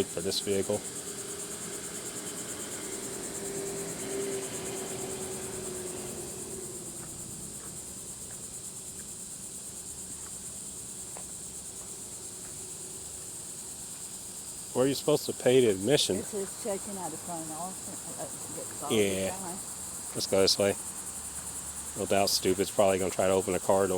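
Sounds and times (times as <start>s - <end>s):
passing vehicle hum: 0.0s - 10.1s, 14.8s - 23.9s
high-pitched pulsing insect chorus: 0.0s - 23.9s.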